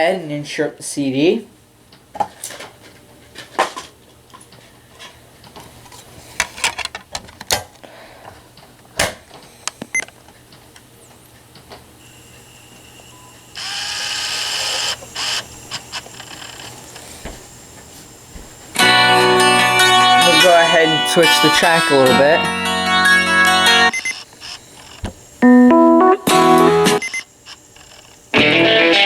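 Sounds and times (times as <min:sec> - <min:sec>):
cd player disc whirring: 0:11.4 - 0:29.0
plastic clicks: 0:27.0 - 0:28.3.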